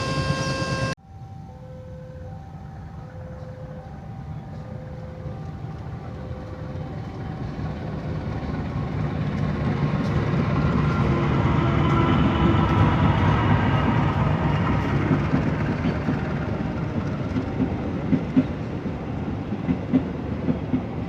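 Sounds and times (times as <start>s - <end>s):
level crossing two-tone warning: 0.0s - 1.0s
train rumble: 0.0s - 1.0s, 3.4s - 21.0s.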